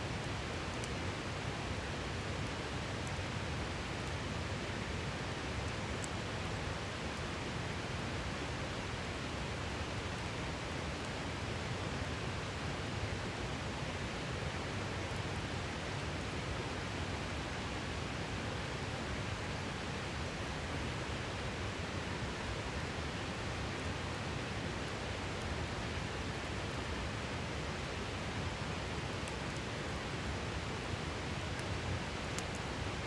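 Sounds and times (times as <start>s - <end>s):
campfire crackling: 24.8s - 33.0s.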